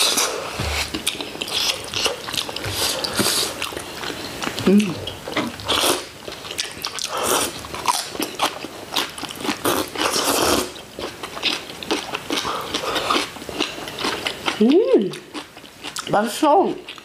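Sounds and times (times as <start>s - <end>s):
person chewing crunchy food: 0.0s - 16.1s.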